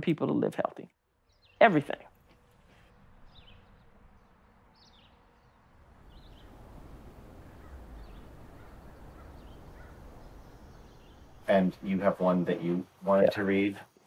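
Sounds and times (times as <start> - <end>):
bird chirps: 1.2 - 1.8, 3.2 - 12.0
low steady rumble: 2.9 - 12.6.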